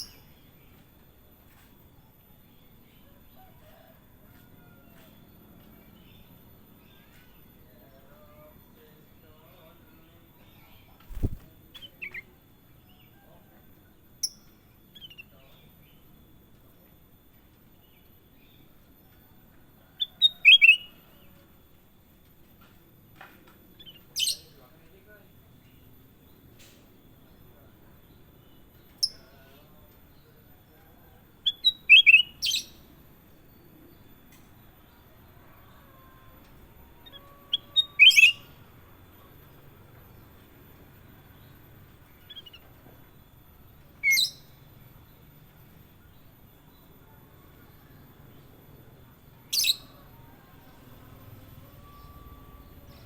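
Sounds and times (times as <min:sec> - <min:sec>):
bulbul calling: 0:11.1 - 0:11.5
bird chirping: 0:41.4 - 0:42.8.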